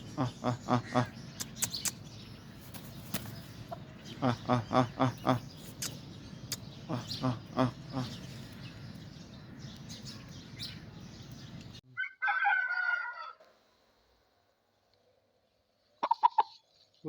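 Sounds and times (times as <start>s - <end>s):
rooster crowing: 12.0s - 13.5s
chickens clucking: 16.0s - 16.6s.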